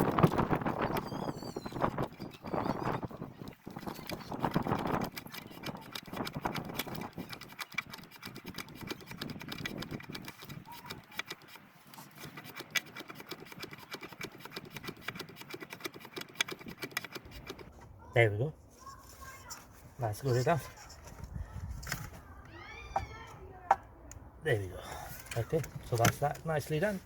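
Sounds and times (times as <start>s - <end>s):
plastic parts clicking and knocking: 1.9s - 17.7s, 25.1s - 26.9s.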